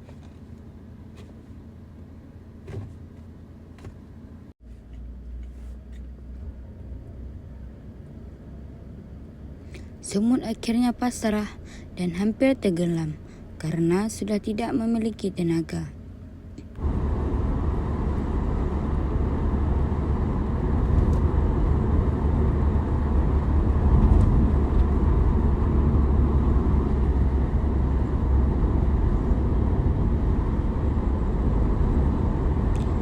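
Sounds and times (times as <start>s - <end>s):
steady low rumbling: 16.8s - 33.0s.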